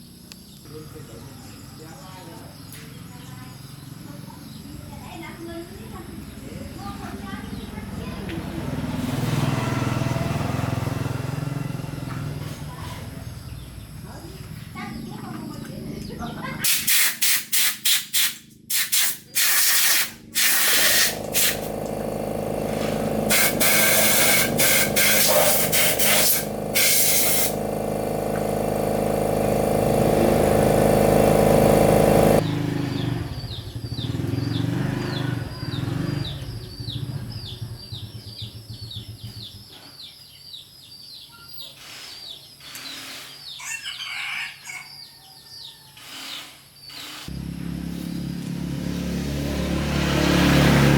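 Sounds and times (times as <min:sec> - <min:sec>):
air hissing: 0:16.6 - 0:32.4
motor-driven machine running: 0:18.7 - 0:34.2, 0:47.0 - 0:50.9
bird chirps: 0:32.4 - 0:47.2.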